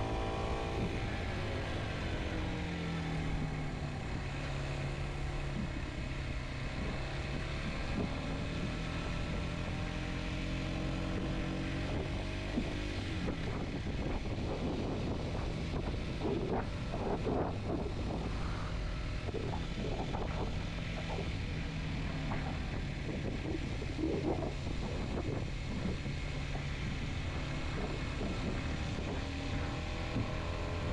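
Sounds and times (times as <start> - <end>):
motorcycle engine running: 0.0 - 30.9
wind buffeting microphone: 11.0 - 30.9.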